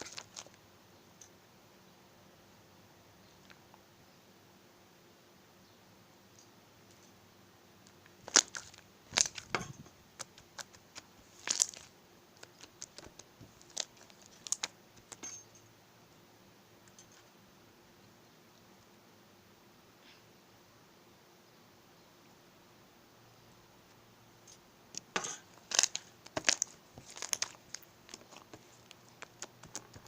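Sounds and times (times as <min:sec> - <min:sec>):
slime squished by hand crackling: 0:08.2 - 0:09.5, 0:10.2 - 0:15.2, 0:25.0 - 0:30.0.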